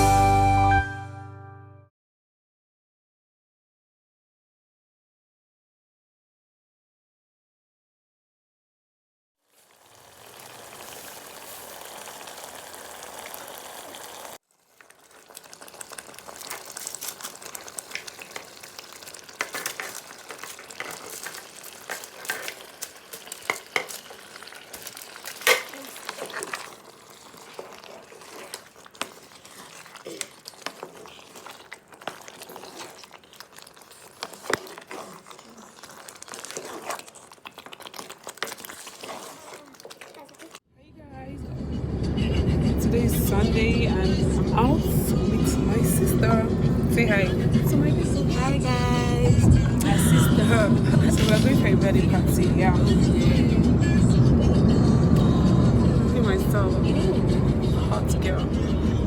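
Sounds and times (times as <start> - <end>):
stew sizzling in a pot: 9.4 - 40.6
spoon stirring and scraping pot: 14.8 - 40.6, 49.9 - 53.2.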